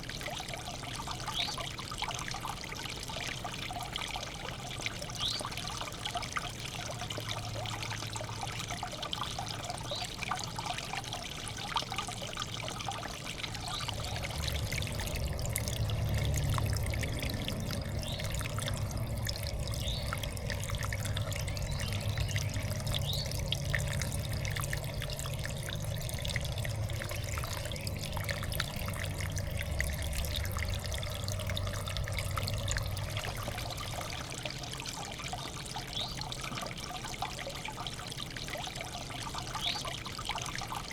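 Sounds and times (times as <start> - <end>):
water trickling into bird bath: 0.0 - 40.9
low hum: 13.4 - 34.8.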